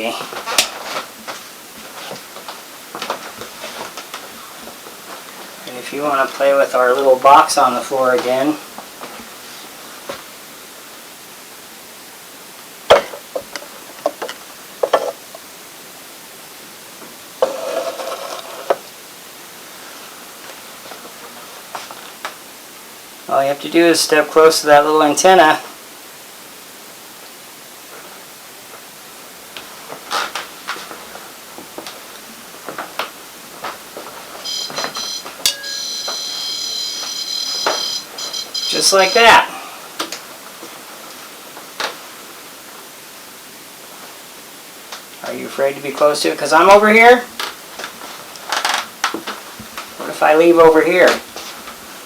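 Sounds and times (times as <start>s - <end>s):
rustling: 0.0s - 10.3s
high electronic alarm tone: 34.4s - 39.6s.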